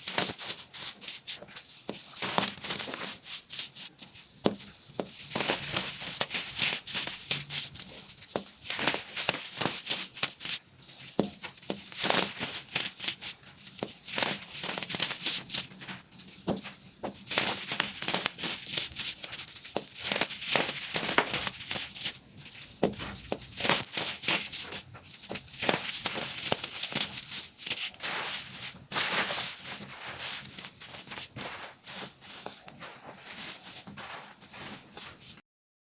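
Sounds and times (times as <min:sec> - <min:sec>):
baking soda crunching: 0:20.3 - 0:24.8.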